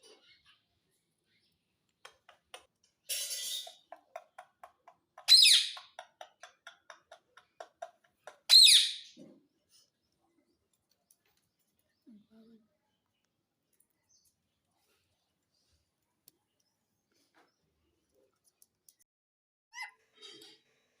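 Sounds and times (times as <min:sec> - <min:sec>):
parrot screeching: 0:08.5 - 0:09.1.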